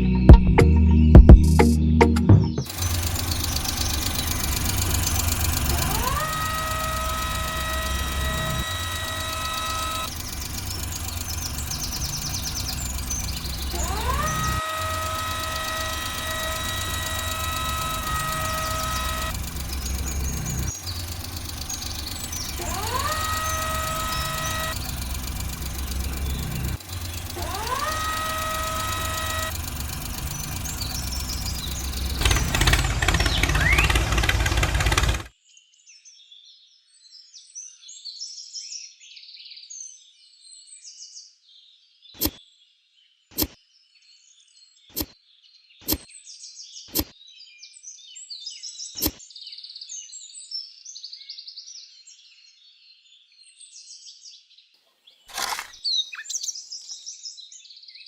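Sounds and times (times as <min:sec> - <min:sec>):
birds chirping faintly: 0:02.6 - 0:34.6
sharp clicks: 0:02.6 - 0:35.3
small motor whining: 0:02.6 - 0:35.3.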